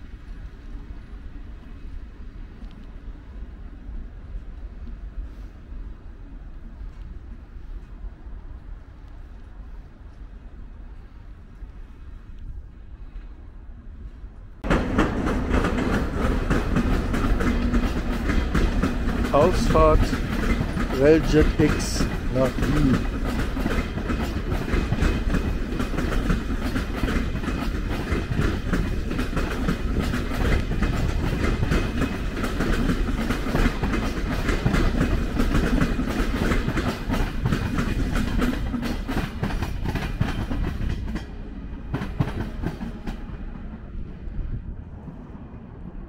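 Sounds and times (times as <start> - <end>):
wheels clicking over rail joints: 14.6 - 43.8.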